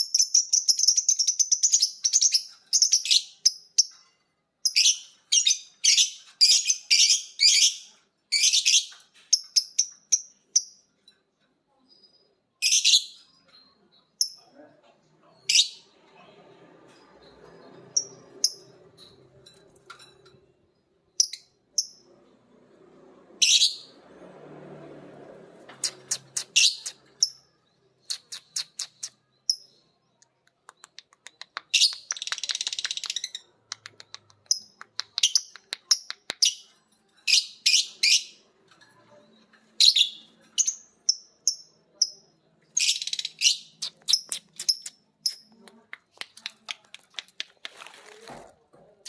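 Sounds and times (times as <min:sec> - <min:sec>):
lovebirds chirping: 0:25.8 - 0:49.0.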